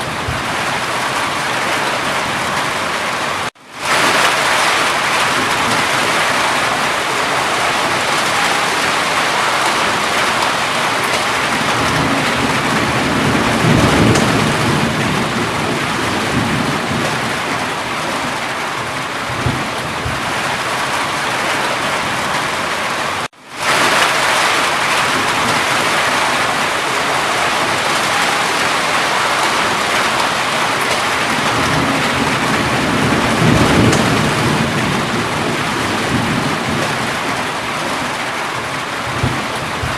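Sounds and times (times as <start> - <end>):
thunder rumbling: 0.0 - 3.2, 3.8 - 39.9
heavy rain falling: 0.0 - 39.9.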